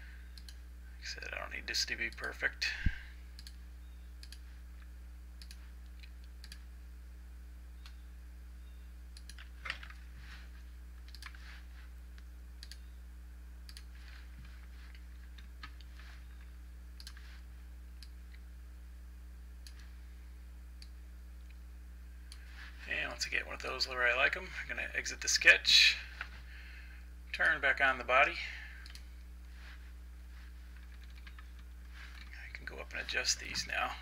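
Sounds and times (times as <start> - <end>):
low electrical hum: 0.0 - 34.0
computer mouse clicking: 3.4 - 3.6, 4.2 - 4.4, 5.4 - 6.7, 9.2 - 9.9, 11.0 - 11.4, 12.2 - 12.9, 13.7 - 13.9, 17.0 - 17.2, 30.7 - 32.4.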